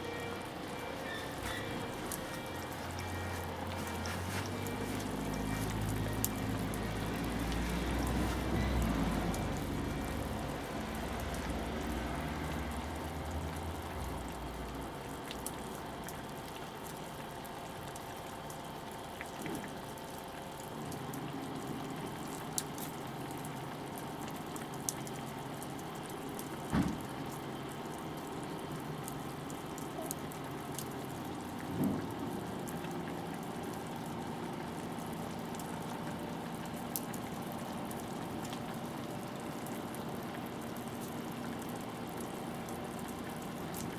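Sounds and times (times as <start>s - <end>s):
wood fire crackling: 0.0s - 11.0s
pot simmering and bubbling: 0.0s - 43.9s.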